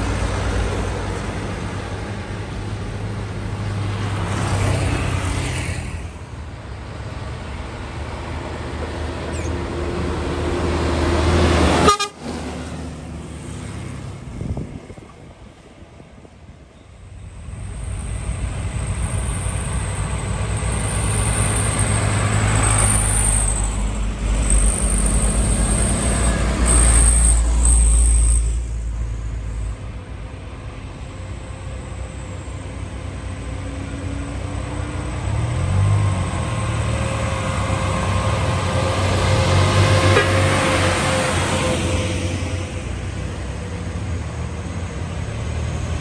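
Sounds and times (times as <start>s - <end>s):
heavy diesel trucks passing: 0.0s - 46.0s.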